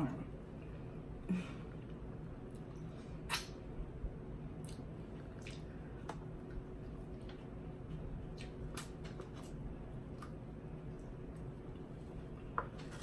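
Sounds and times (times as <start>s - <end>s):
sharp mouth clicks: 3.3s - 3.6s
wet smacking and chewing: 4.6s - 11.9s.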